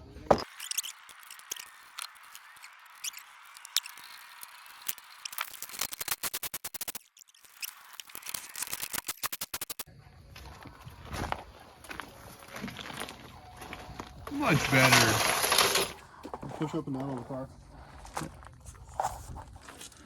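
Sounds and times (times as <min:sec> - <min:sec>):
rapid dry mechanical clicking: 0:03.6 - 0:07.2, 0:08.0 - 0:09.9.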